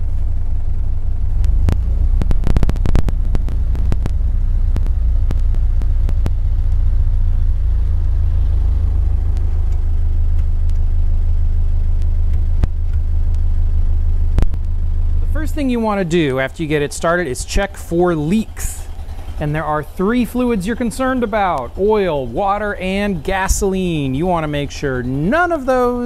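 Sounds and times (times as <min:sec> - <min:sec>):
car engine idling: 0:00.0 - 0:26.0
sharp clicks and knocks: 0:01.4 - 0:06.9, 0:11.9 - 0:13.5, 0:14.3 - 0:14.8.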